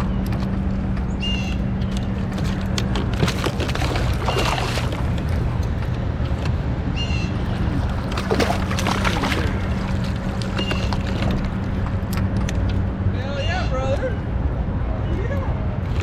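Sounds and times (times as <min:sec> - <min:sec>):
steady low hum: 0:00.0 - 0:13.3
gear knocking against boat: 0:00.2 - 0:12.8
water sloshing: 0:01.5 - 0:12.9.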